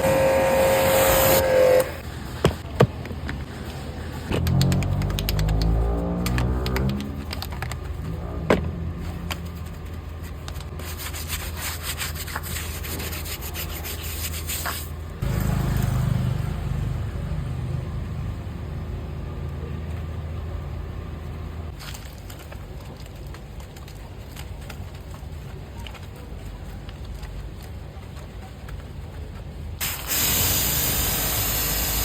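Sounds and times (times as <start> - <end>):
low hum: 0.0 - 2.4
rubbing and scraping on car: 0.0 - 15.0.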